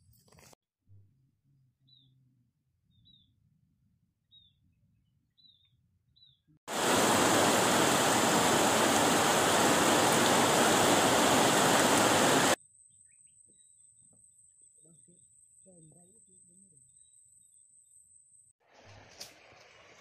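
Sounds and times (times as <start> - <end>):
small bird chirping: 5.3 - 6.5
heavy rain pouring: 6.7 - 12.6.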